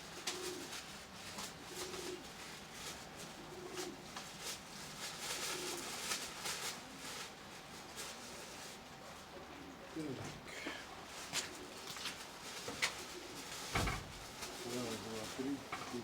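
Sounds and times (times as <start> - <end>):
pigeons cooing: 0.0 - 16.0
rain hiss with sharp taps: 11.3 - 16.0.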